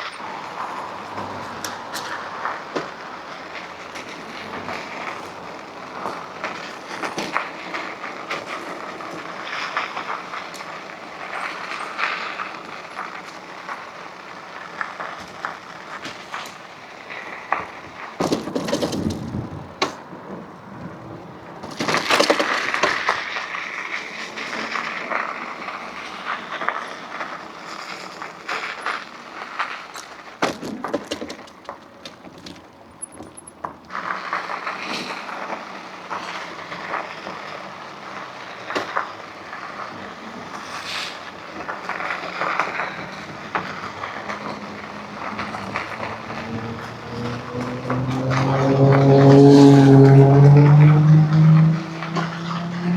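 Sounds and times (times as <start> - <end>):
clicks and knocks from bumps: 29.6 - 35.2
bike riding rushing hiss: 34.0 - 48.6.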